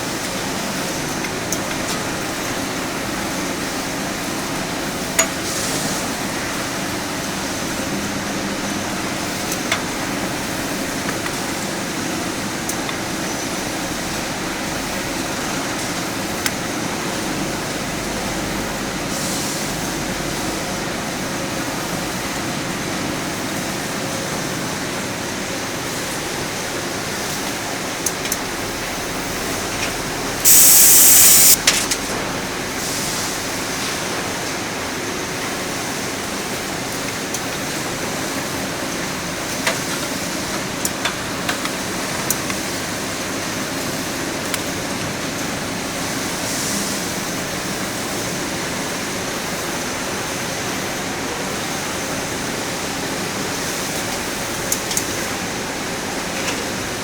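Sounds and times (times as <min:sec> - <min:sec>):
loud hiss: 0:30.4 - 0:31.6.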